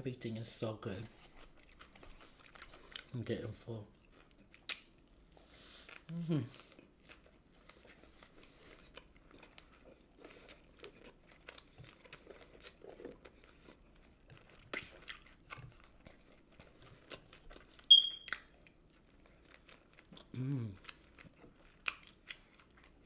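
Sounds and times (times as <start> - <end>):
person chewing food: 1.1 - 23.0
sharp high-pitched squeak: 17.9 - 18.3.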